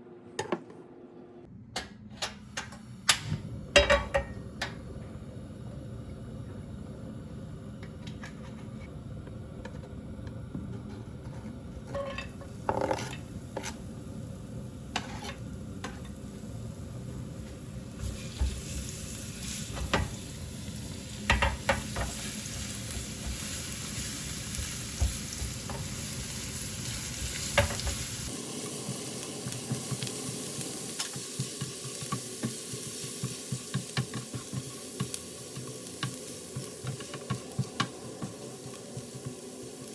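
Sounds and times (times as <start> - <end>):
food sizzling in a pan: 11.8 - 39.9.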